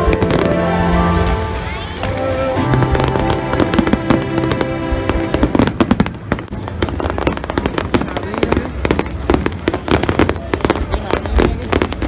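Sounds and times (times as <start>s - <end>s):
music playing: 0.0s - 6.4s
fireworks bangs and crackles: 0.0s - 12.0s.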